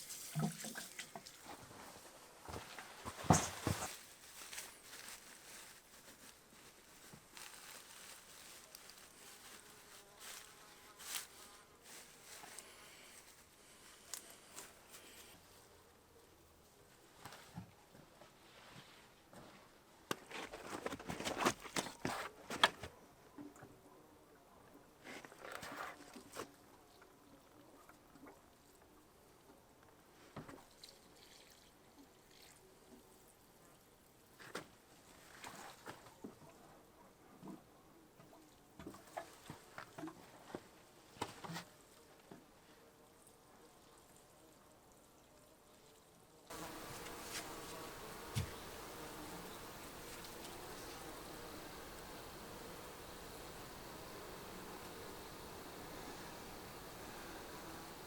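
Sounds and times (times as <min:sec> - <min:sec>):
soft rustles: 0:01.2 - 0:15.8, 0:46.5 - 0:51.2
flying insect buzzing: 0:46.5 - 0:58.0.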